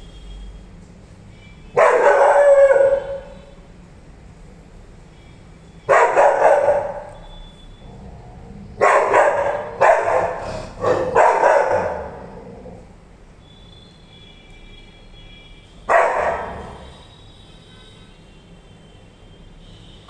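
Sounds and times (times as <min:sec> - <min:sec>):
dog barking deeply: 0:01.8 - 0:03.4, 0:05.9 - 0:07.2, 0:08.0 - 0:13.0, 0:15.9 - 0:17.0.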